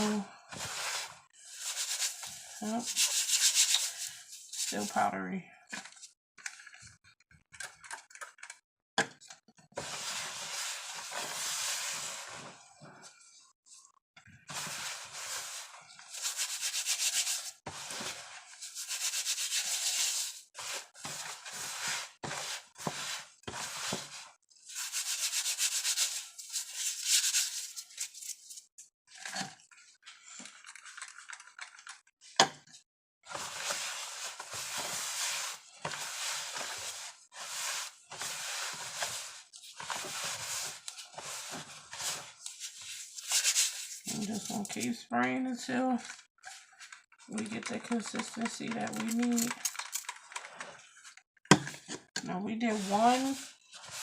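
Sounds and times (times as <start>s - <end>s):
gritty powder rubbing: 0.7s - 5.0s, 14.6s - 18.0s, 18.6s - 24.0s, 24.7s - 28.5s, 33.3s - 45.0s, 52.7s - 54.0s.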